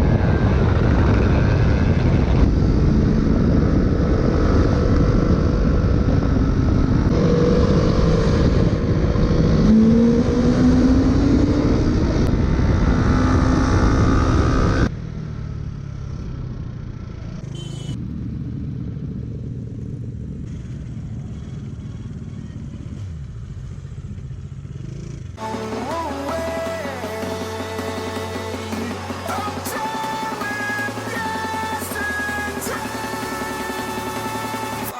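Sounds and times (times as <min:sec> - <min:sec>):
wind rush on microphone: 0:00.0 - 0:14.9
motorcycle engine accelerating: 0:00.0 - 0:34.9.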